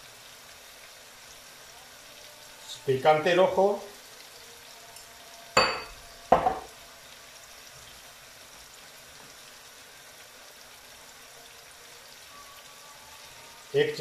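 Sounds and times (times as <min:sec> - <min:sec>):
food sizzling in a pot: 0:00.0 - 0:14.0
spoon clinking against container: 0:05.0 - 0:06.7.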